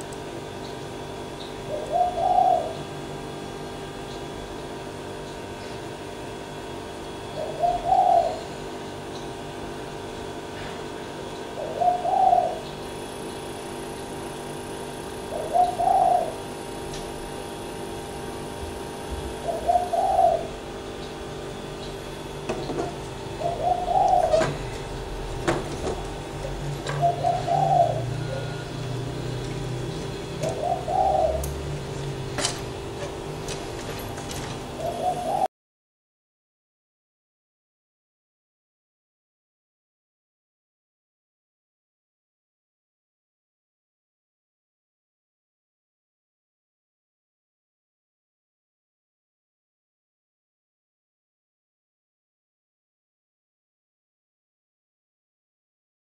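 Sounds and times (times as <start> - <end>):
steady background hum: 0.0 - 35.5
dove cooing: 1.6 - 3.1, 7.2 - 8.7, 11.5 - 12.7, 15.1 - 16.6, 18.6 - 20.8, 22.0 - 35.5.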